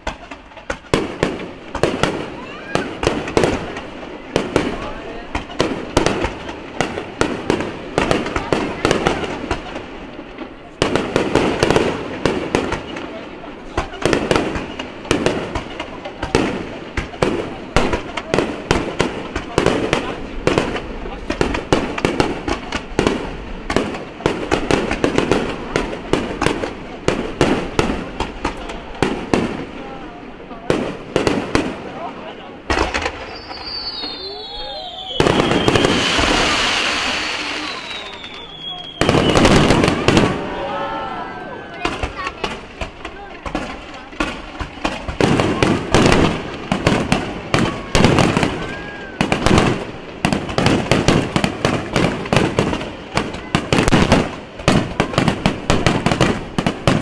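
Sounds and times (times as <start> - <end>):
fireworks booms and crackles: 0.0 - 57.0
fireworks shells bursting: 32.6 - 40.6.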